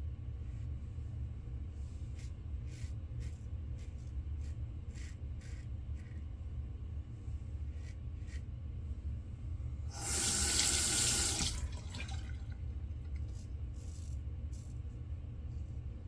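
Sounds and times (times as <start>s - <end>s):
sink tap running: 9.9s - 12.6s.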